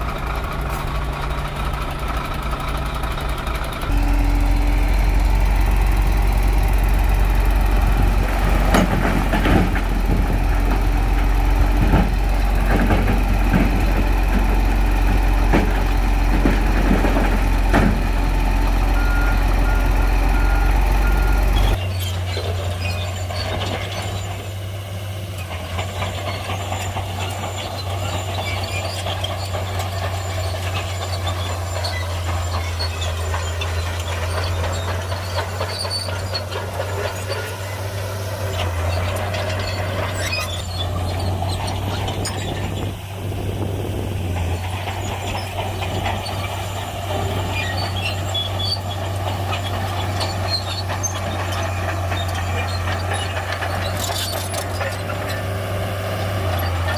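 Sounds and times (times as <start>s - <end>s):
bulldozer diesel engine: 0.0s - 56.9s
clanks from tracks: 0.0s - 56.9s
short beeps: 3.9s - 5.4s.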